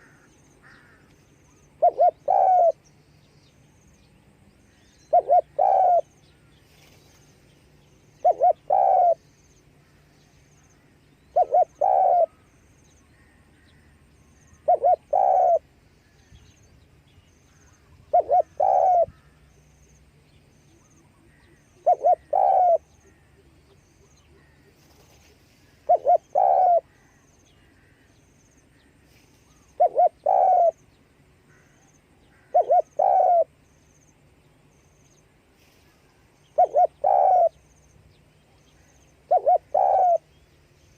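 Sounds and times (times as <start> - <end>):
dove cooing: 1.7 - 2.8, 5.1 - 6.1, 8.2 - 9.3, 11.3 - 12.5, 14.5 - 15.7, 17.6 - 19.4, 20.8 - 27.2, 29.6 - 30.8, 32.4 - 33.6, 36.5 - 37.7, 38.7 - 40.4.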